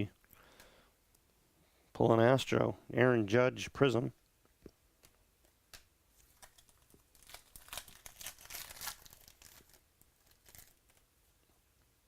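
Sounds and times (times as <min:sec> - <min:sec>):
wrapper crinkling and tearing: 0:06.2 - 0:11.1.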